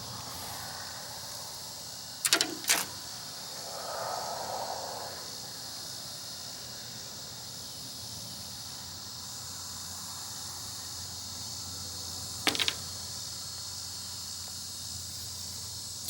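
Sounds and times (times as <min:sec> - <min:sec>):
crickets and insects chirring: 0:00.0 - 0:16.0
rattle of sharp clicks: 0:02.2 - 0:03.1, 0:12.5 - 0:13.0.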